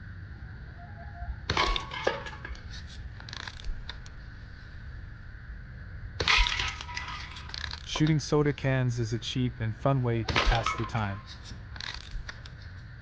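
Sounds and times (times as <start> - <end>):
bb rifle shot with metallic ring: 10.3 - 11.2.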